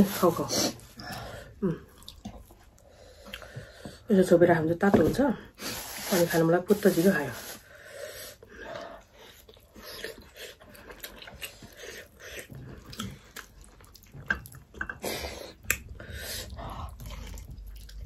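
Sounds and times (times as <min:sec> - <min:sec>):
chewing: 0:00.8 - 0:03.9, 0:08.4 - 0:18.0.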